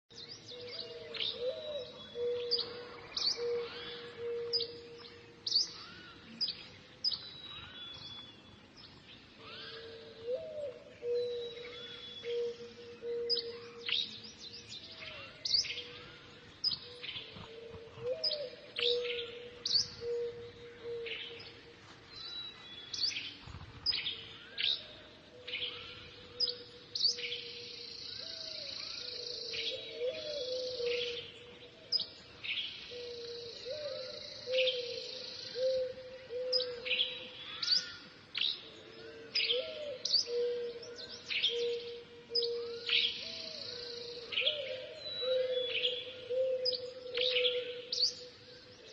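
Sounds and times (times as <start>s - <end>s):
small birds chirping: 0.1s - 48.9s.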